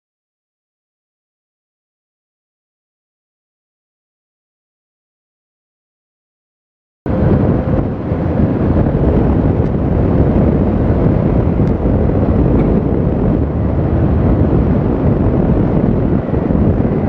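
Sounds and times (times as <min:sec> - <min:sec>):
road noise from moving vehicle: 0:07.1 - 0:17.0
wind buffeting microphone: 0:07.1 - 0:17.0.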